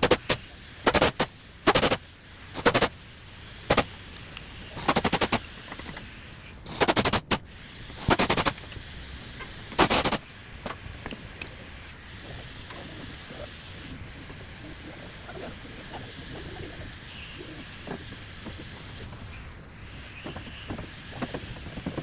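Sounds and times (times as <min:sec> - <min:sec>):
air impact wrench hammering: 0:00.0 - 0:03.0, 0:03.7 - 0:04.0, 0:04.8 - 0:06.0, 0:06.6 - 0:08.7, 0:09.7 - 0:10.8.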